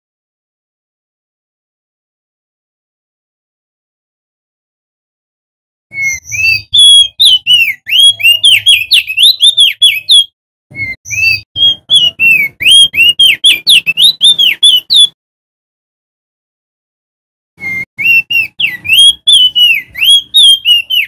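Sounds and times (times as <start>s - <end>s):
bird singing whistled notes: 5.9s - 15.2s, 17.6s - 21.0s.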